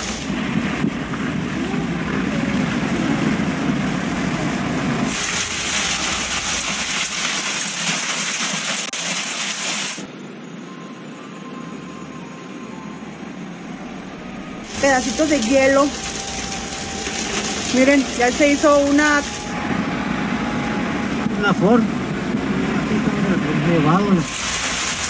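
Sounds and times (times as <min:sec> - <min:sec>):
heavy hail pelting down: 0:00.0 - 0:10.1, 0:14.6 - 0:23.3, 0:24.0 - 0:25.0.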